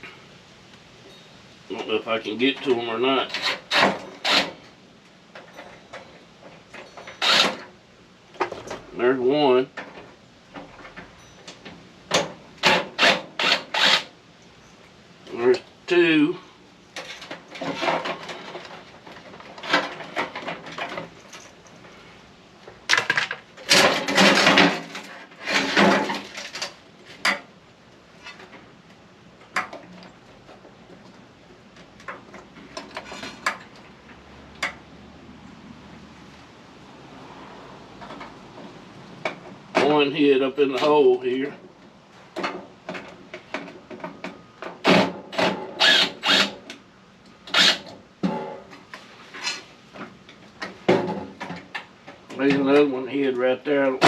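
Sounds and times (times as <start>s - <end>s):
metal clattering and scraping: 16.9s - 27.5s, 32.2s - 33.8s.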